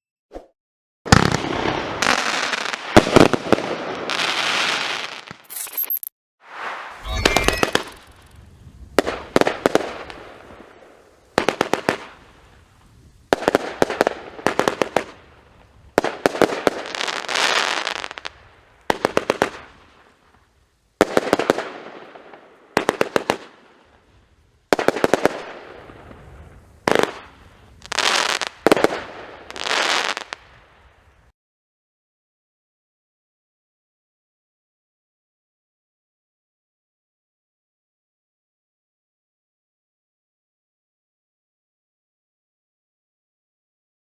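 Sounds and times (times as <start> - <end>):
firework launch reports: 6.5 - 8.4
crackling hissing firework burst: 6.5 - 20.4.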